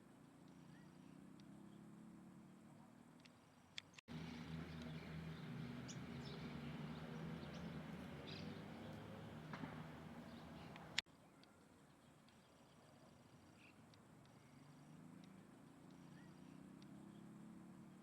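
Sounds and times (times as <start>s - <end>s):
faint bird chirps: 0.4s - 18.0s
steady low hum: 4.1s - 11.0s.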